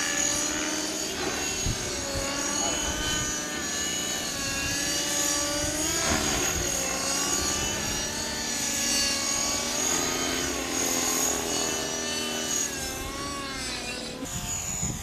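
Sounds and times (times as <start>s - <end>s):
model helicopter rotor and whine: 0.0s - 15.0s.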